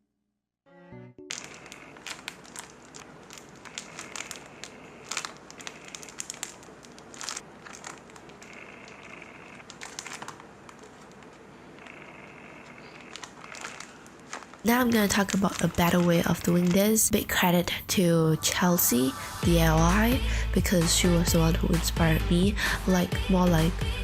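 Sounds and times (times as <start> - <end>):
plastic-wrapped paper crinkling: 1.3 - 17.5.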